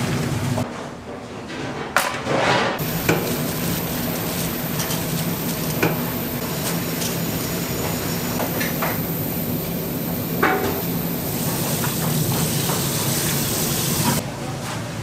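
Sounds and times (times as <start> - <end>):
utensils clinking: 2.8 - 9.2
food sizzling in a pan: 2.8 - 14.2.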